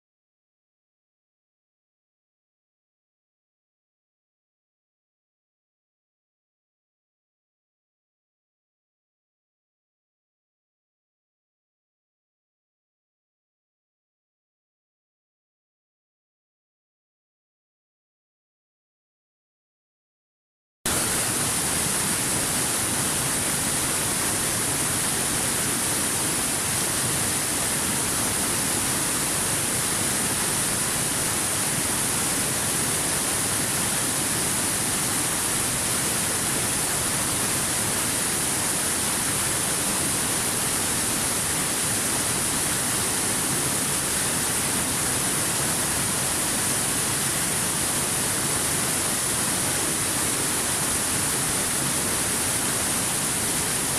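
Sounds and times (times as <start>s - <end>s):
waterfall rushing: 20.9s - 53.9s.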